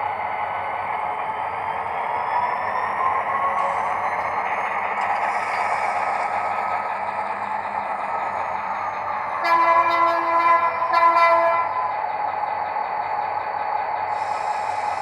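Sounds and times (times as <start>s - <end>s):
diesel locomotive engine running: 0.0s - 15.0s
multi-tone horn blasts: 9.4s - 11.8s.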